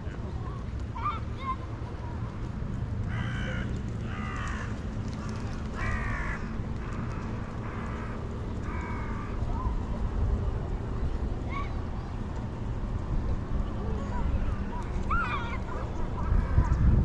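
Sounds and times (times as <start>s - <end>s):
low outdoor rumble: 0.0s - 17.0s
crow cawing: 3.1s - 9.4s.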